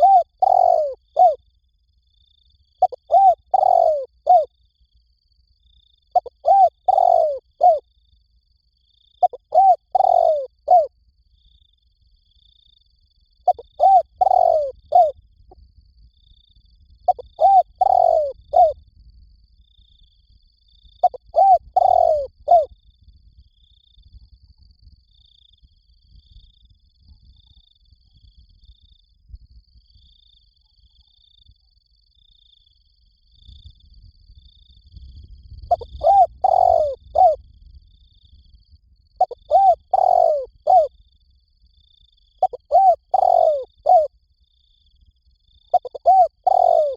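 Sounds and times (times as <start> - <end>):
dove cooing: 0.0 - 1.4, 2.8 - 4.5, 6.1 - 7.8, 9.2 - 10.9, 13.5 - 15.1, 17.1 - 18.8, 21.0 - 22.7, 35.7 - 37.4, 39.2 - 40.9, 42.4 - 44.1, 45.7 - 46.9.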